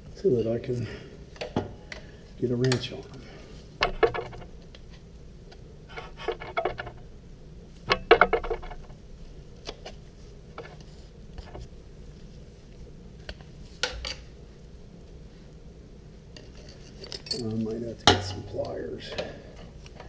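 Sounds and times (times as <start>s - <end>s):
metal hand tools clinking: 17.0s - 17.6s.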